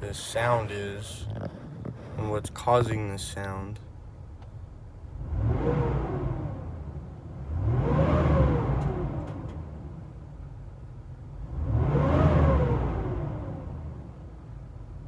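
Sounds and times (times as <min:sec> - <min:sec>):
engine revving: 0:05.1 - 0:10.0, 0:11.4 - 0:14.2.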